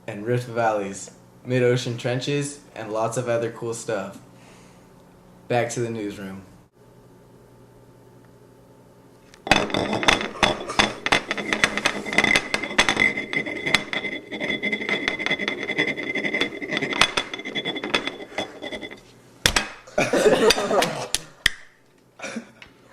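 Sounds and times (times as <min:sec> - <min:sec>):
steady high whine: 0:09.3 - 0:19.1
rapid clattering and knocking: 0:09.5 - 0:19.0.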